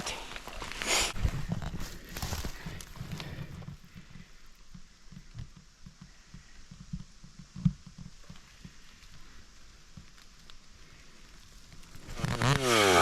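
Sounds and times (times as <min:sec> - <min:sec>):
rustling: 0:00.0 - 0:12.5.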